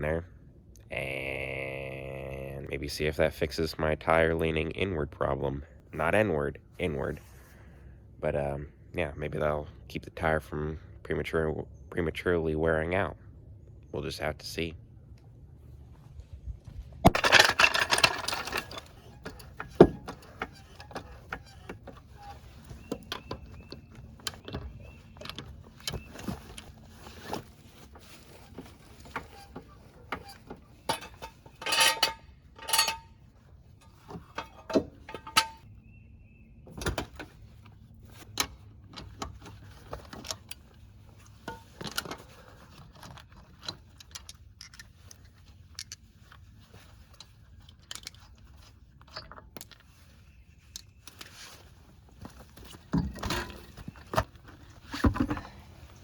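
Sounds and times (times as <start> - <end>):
hand tools and metal parts clanking: 17.0 - 35.7, 36.7 - 56.0.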